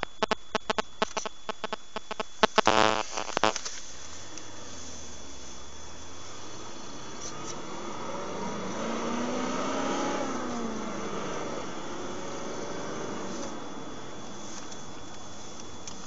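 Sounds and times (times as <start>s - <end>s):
engine passing by: 6.1s - 14.4s.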